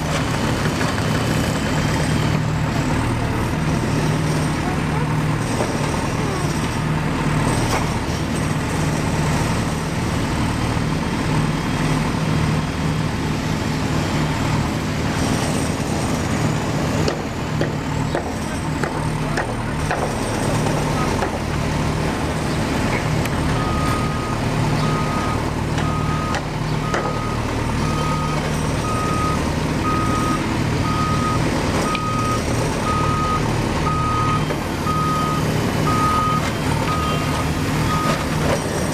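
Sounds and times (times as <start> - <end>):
truck engine running: 0.0 - 38.9
reversing alarm beeping: 23.5 - 38.5.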